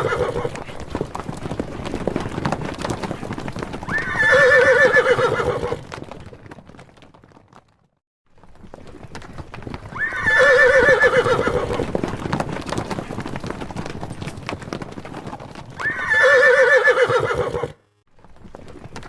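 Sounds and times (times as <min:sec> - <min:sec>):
horse whinnying: 0:00.0 - 0:00.6, 0:03.8 - 0:06.0, 0:09.9 - 0:11.9, 0:15.7 - 0:17.8
hooves clopping: 0:00.0 - 0:19.0.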